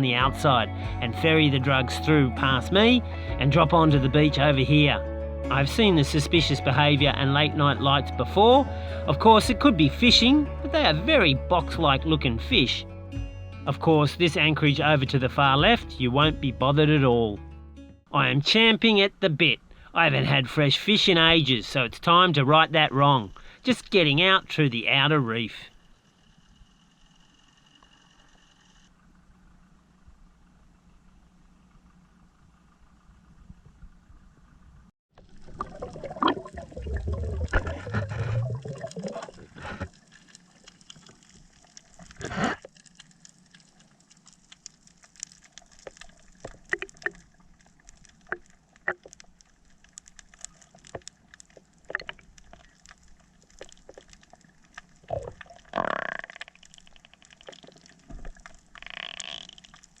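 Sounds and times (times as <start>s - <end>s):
water gurgling and sloshing: 25.6s - 60.0s.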